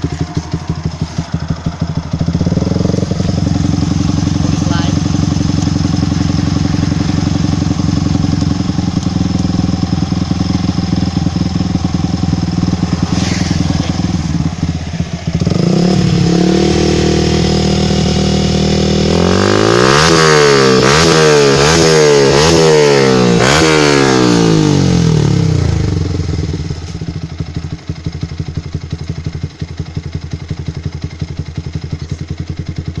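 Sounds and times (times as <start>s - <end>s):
motorcycle engine idling and revving: 0.0s - 33.0s.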